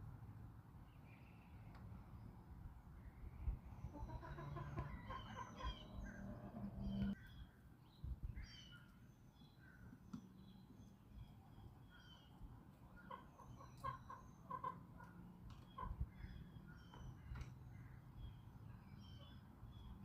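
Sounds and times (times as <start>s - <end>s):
small birds chirping: 0.8s - 20.0s
low outdoor rumble: 1.8s - 7.2s
chickens clucking: 3.8s - 7.2s, 12.8s - 16.1s.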